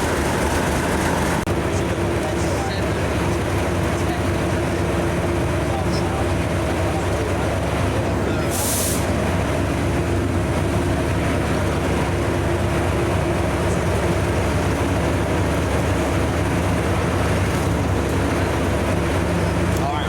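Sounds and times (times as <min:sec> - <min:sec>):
diesel locomotive engine running: 0:00.0 - 0:20.0.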